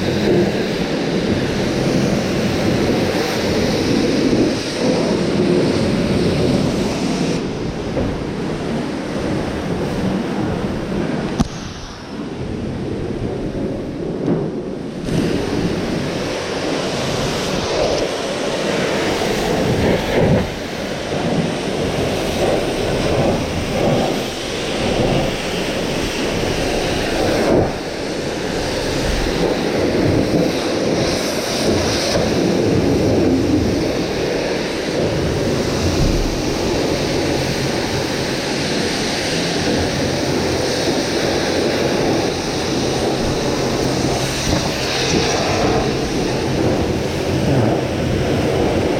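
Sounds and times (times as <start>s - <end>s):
pressure washer spray: 15.0s - 48.9s
washer motor hum: 15.4s - 48.9s.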